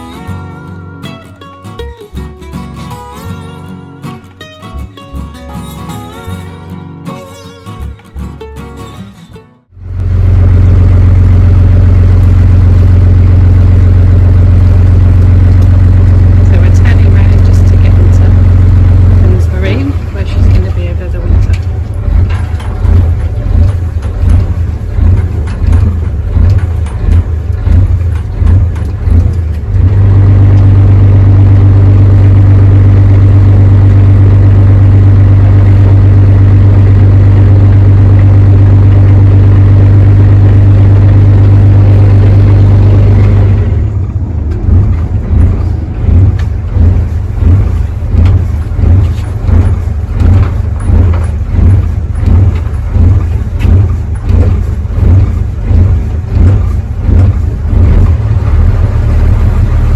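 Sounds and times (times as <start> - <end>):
low engine drone pulsing: 9.6 - 59.9.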